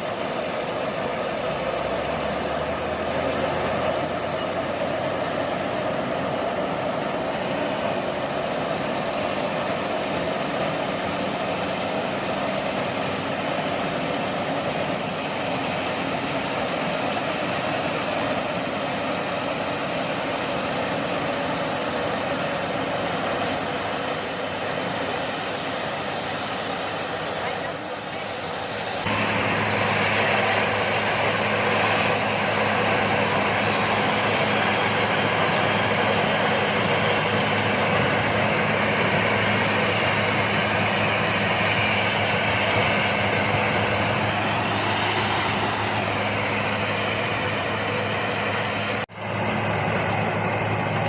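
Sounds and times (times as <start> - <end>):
harvester engine running: 0.0 - 51.0.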